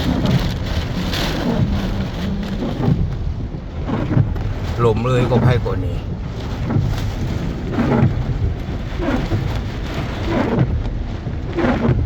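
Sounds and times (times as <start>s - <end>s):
low thunder rumbling: 0.0s - 9.0s
heavy rain pouring: 0.0s - 11.2s.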